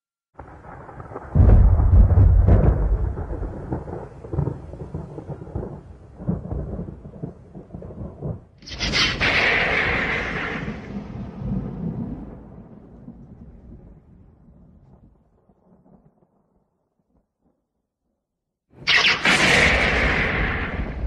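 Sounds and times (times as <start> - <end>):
sharp thunder crack: 0.4 - 14.6, 18.8 - 21.0
thunder rumbling: 0.4 - 16.4, 18.8 - 21.0.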